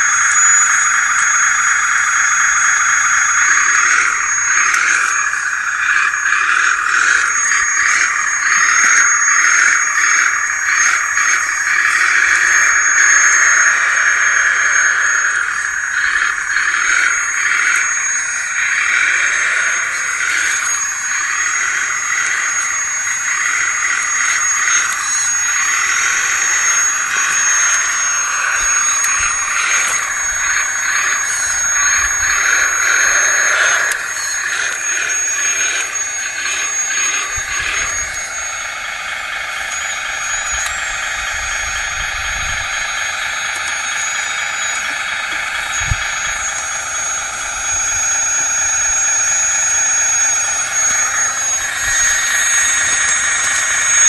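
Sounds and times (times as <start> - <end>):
hydraulic pump whining: 0.0 - 54.0.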